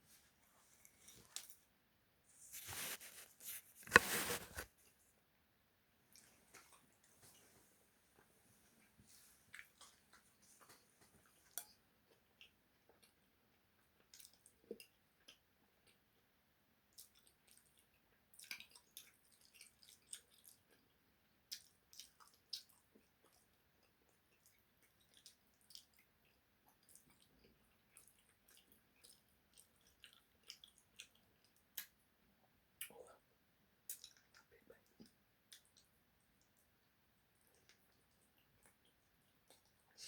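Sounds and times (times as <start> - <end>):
person chewing with wet smacks: 6.1 - 7.4, 9.5 - 32.2, 32.8 - 40.0.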